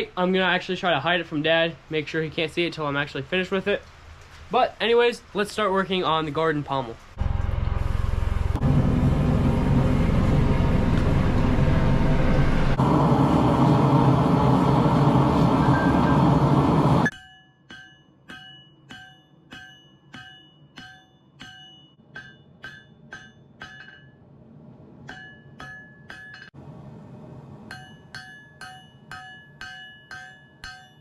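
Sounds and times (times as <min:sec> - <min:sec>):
loud steady roar: 0:07.2 - 0:17.1
hammer ringing on anvil: 0:17.1 - 0:24.2, 0:25.1 - 0:26.5, 0:27.7 - 0:31.0.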